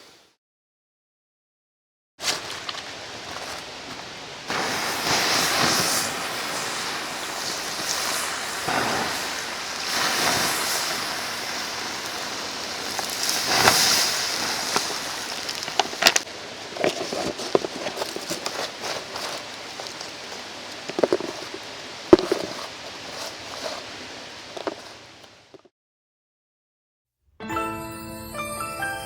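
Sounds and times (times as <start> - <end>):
stream water rushing: 2.4 - 25.2.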